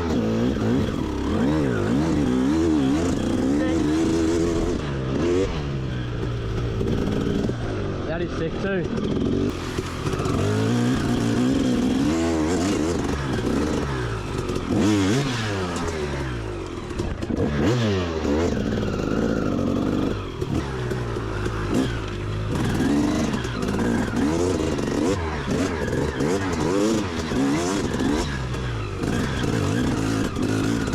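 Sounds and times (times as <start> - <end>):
dirt bike engine revving: 0.0 - 30.9.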